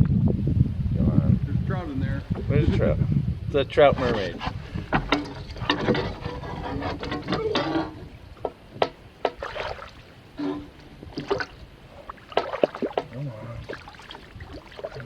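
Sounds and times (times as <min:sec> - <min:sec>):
water splashing and trickling: 0:09.2 - 0:15.0.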